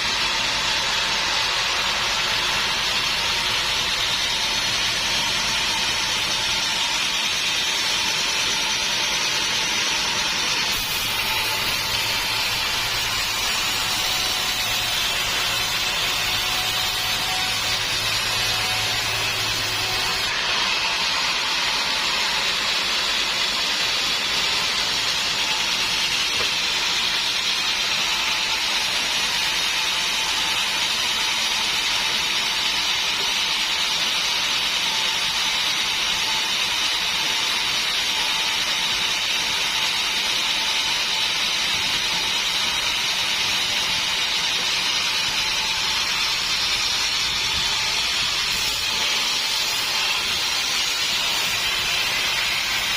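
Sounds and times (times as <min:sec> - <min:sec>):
saw cutting through log: 0:00.0 - 0:52.9.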